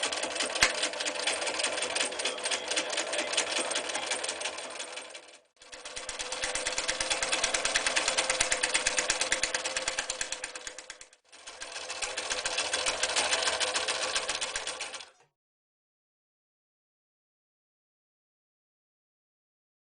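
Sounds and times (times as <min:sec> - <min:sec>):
electric sewing machine stitching: 0:00.0 - 0:15.3.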